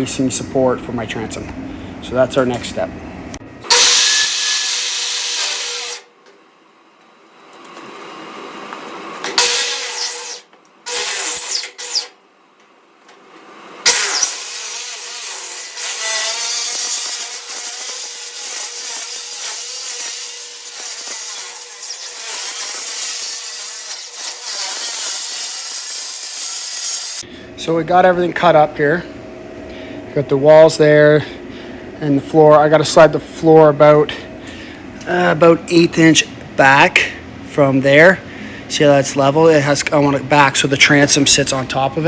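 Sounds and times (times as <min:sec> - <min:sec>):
power tool cutting aluminum: 0:03.6 - 0:06.1, 0:09.2 - 0:12.2, 0:13.8 - 0:27.2.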